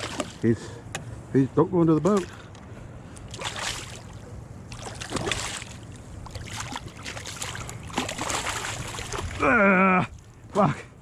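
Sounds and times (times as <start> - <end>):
water splashing at a kayak: 0.0 - 0.4, 3.2 - 10.4.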